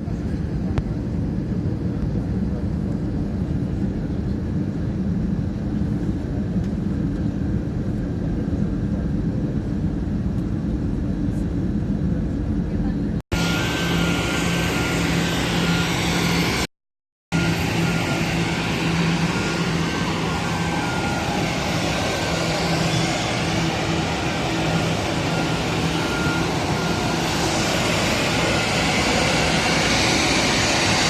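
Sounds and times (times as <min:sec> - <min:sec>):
jet engines: 0:00.0 - 0:16.7, 0:17.3 - 0:31.0
on-off beep: 0:23.7 - 0:29.4.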